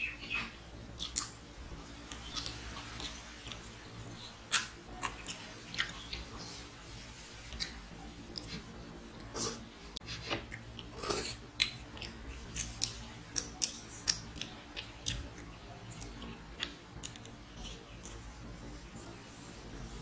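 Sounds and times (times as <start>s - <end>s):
wet chewing and lip smacks: 2.1s - 3.7s, 10.5s - 18.3s.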